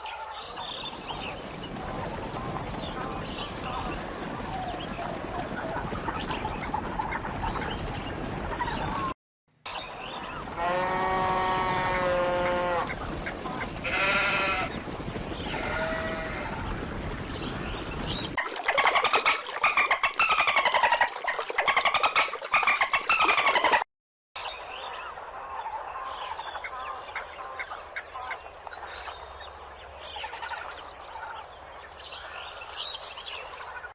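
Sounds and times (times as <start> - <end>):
animal calls: 18.4 - 23.8.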